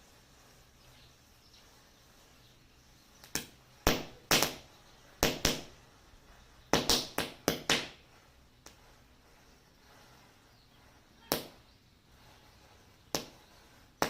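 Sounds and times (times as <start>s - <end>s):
firecracker pops: 3.2s - 4.6s, 5.2s - 5.7s, 6.7s - 8.0s, 11.3s - 11.6s.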